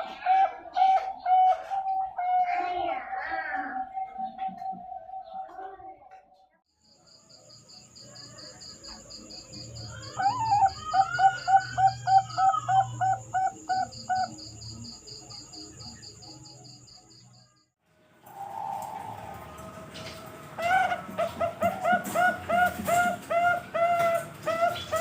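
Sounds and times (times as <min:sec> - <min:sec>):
insects chirping: 0:06.8 - 0:17.7
dove cooing: 0:08.6 - 0:14.6, 0:18.3 - 0:25.0.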